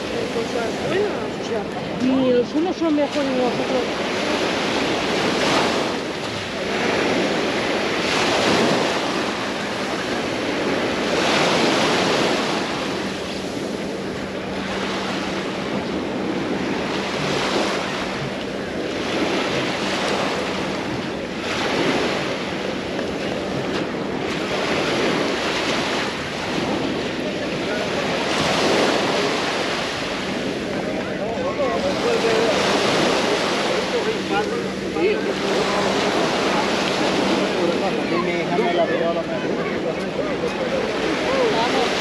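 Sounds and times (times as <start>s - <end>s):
small waves breaking on shore: 0.0s - 42.0s.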